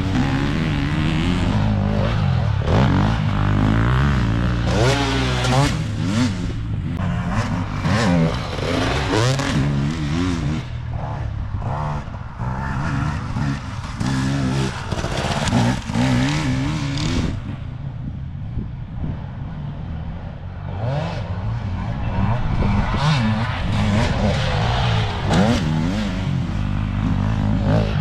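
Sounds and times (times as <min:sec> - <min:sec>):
dirt bike engine revving: 0:00.0 - 0:17.6, 0:20.7 - 0:28.0.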